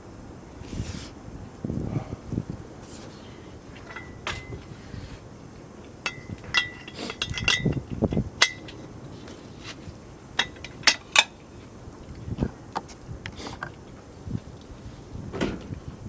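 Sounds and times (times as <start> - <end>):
metal cookware clinking: 3.8 - 4.6, 6.0 - 8.8, 10.4 - 11.4.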